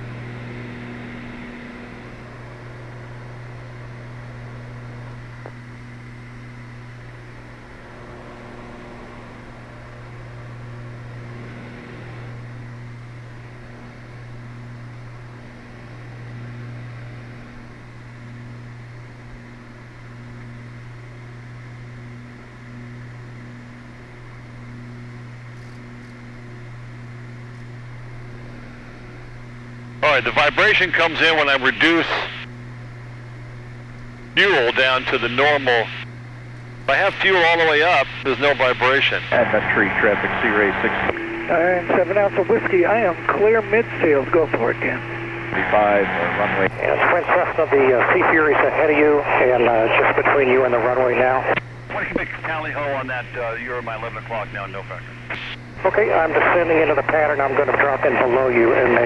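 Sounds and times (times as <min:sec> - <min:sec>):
aircraft engines droning: 0:00.0 - 0:59.0
slow regular throb: 0:39.2 - 0:42.0, 0:43.2 - 0:47.1.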